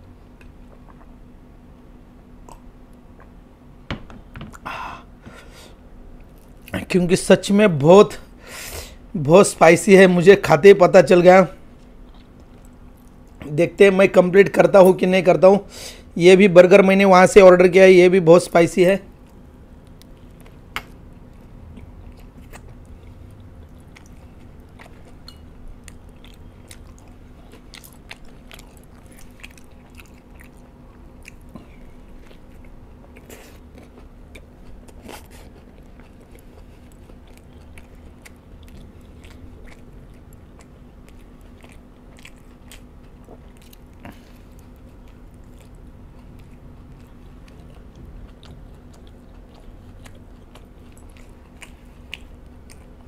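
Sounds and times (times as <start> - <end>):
soft chewing: 0.0 - 1.3, 5.3 - 6.9, 11.6 - 13.5, 19.1 - 53.0
faint low hum: 0.0 - 53.0.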